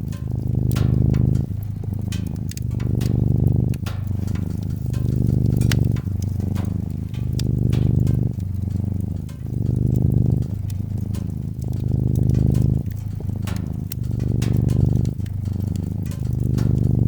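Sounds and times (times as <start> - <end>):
cat purring: 0.0 - 17.0
wood fire crackling: 0.0 - 17.0.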